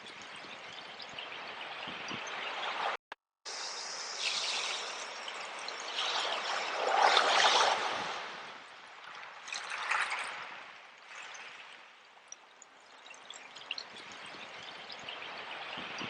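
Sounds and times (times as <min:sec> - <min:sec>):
sea water washing: 0:03.6 - 0:16.0.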